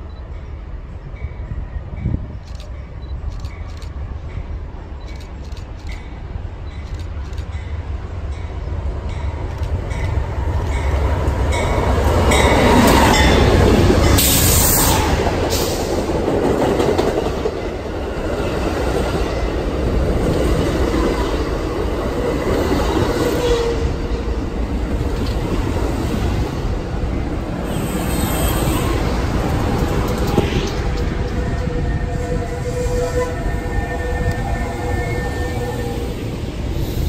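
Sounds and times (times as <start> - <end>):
train wheels rumbling on rails: 0.0 - 37.0
sharp clicks: 9.5 - 10.8.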